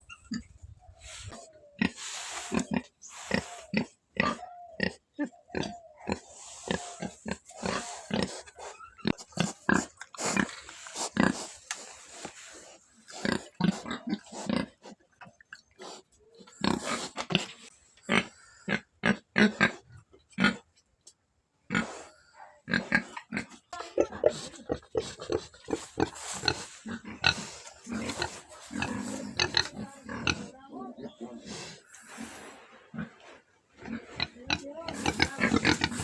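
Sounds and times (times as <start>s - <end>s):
pig grunting: 1.5s - 11.5s, 22.7s - 33.2s, 33.8s - 36.0s.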